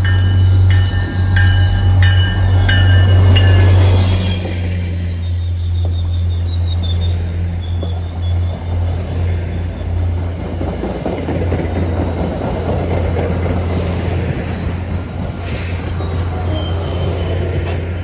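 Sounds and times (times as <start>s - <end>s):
train rumbling past on rails: 0.0s - 18.0s.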